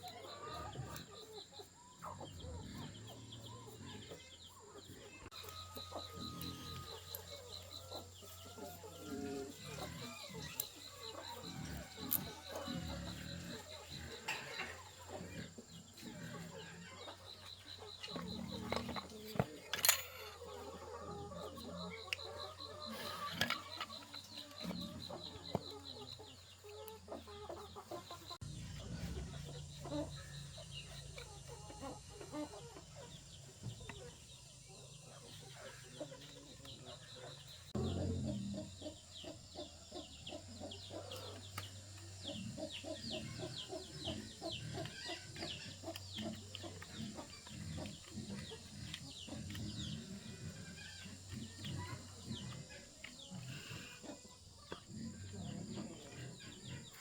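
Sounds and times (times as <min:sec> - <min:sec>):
chickens clucking: 0:00.0 - 0:57.0
chicks cheeping: 0:00.0 - 0:57.0
low hum: 0:28.4 - 0:34.1.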